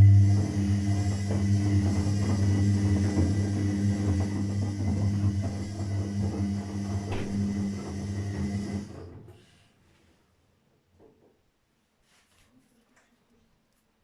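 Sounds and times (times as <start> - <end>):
washing machine drum turning: 0.0 - 9.3.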